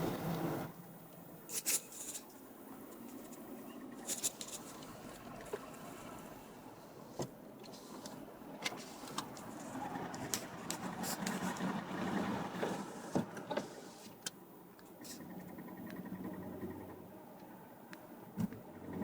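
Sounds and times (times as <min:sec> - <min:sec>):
car road noise: 0:00.0 - 0:01.4, 0:03.9 - 0:13.8.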